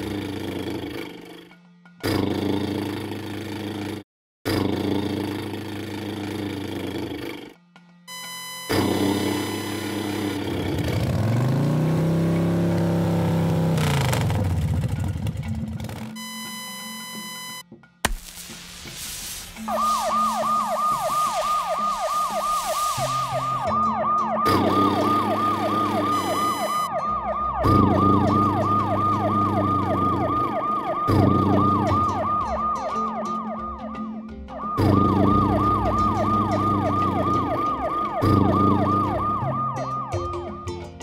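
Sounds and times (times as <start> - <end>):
yelping electronic siren: 8.1 - 11.2, 19.6 - 40.7
background music with bass line: 14.4 - 41.0.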